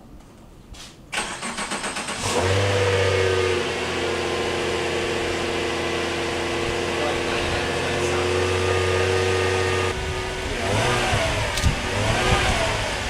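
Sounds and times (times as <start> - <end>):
car starter cranking: 1.1 - 2.6
car engine idling: 1.2 - 13.0.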